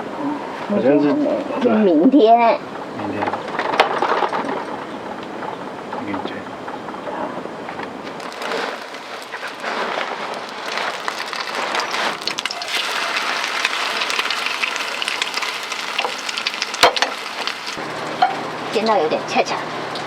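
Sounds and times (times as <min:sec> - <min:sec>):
food sizzling in a frying pan: 0:08.2 - 0:20.0.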